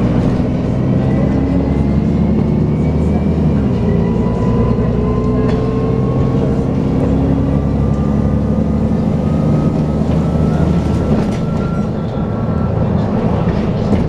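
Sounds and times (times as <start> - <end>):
bus engine whine: 0.0 - 14.0.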